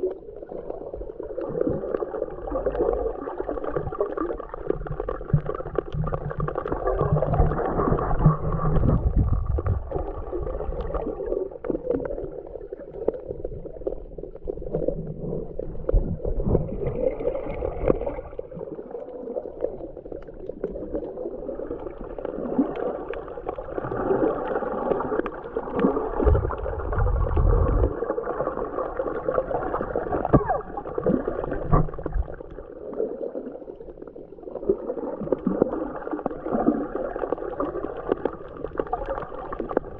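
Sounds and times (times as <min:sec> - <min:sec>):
clicks underwater: 0:00.0 - 0:14.0, 0:22.2 - 0:28.5, 0:29.1 - 0:32.6
underwater gurgling and sloshing: 0:00.0 - 0:39.9
low rumbles: 0:26.2 - 0:28.0.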